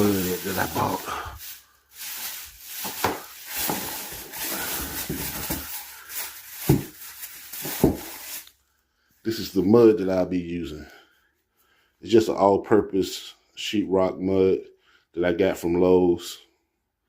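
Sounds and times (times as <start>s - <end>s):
rustling and handling noises: 0.0s - 9.4s.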